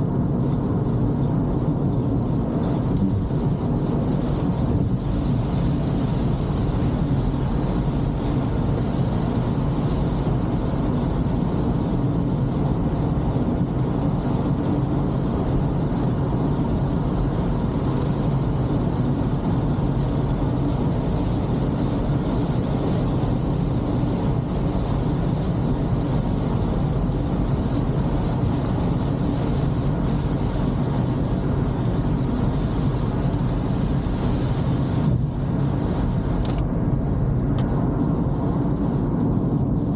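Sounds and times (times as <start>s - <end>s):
car driving on wet road: 0.0s - 39.9s.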